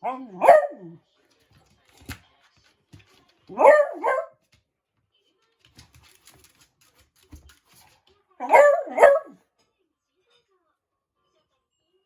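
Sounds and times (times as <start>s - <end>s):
dog bark-howl: 0.0s - 1.0s, 3.5s - 4.3s, 8.4s - 9.4s.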